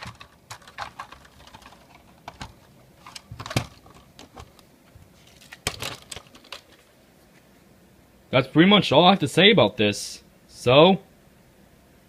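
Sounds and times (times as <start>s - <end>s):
plastic toy clicks and clatters: 0.0s - 4.5s, 5.3s - 6.8s.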